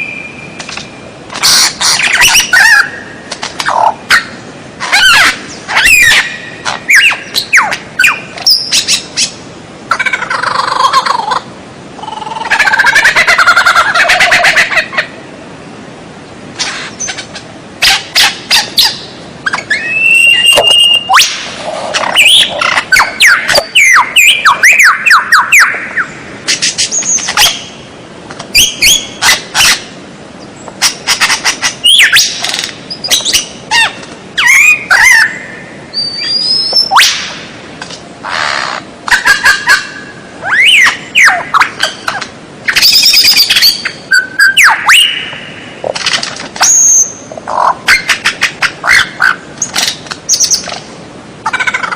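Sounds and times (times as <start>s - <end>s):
bird singing varied song: 0.0s - 9.4s, 18.2s - 21.4s, 22.0s - 27.8s, 30.4s - 37.2s.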